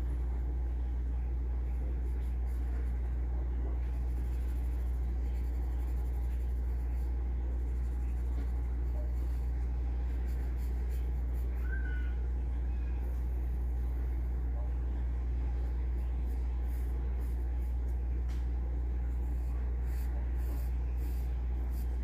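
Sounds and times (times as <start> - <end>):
steady low hum: 0.0 - 22.0
pencil scratching on paper: 1.6 - 11.6, 15.6 - 18.0, 18.8 - 22.0.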